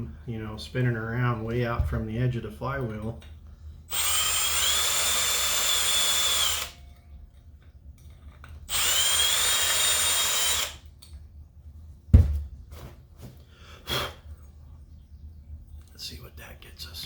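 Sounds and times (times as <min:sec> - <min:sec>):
electric drill whining: 0:03.9 - 0:06.8, 0:08.7 - 0:10.9.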